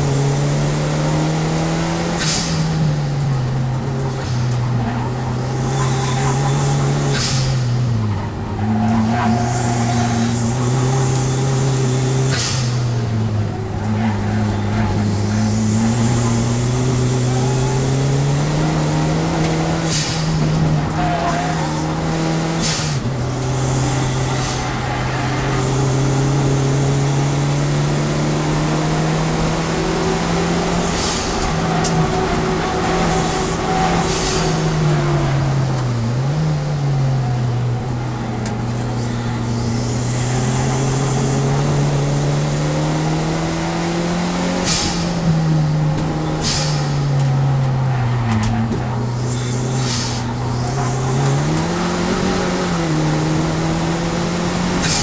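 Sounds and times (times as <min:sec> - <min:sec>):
race car engine revving: 0:00.0 - 0:55.0
short sharp hisses: 0:44.6 - 0:45.2, 0:46.4 - 0:47.0.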